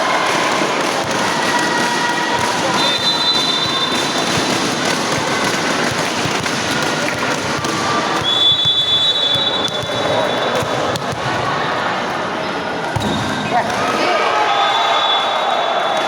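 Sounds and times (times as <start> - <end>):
loud crowd noise: 0.0 - 16.0
long high whistle: 2.8 - 3.9, 8.2 - 10.4, 14.5 - 16.0.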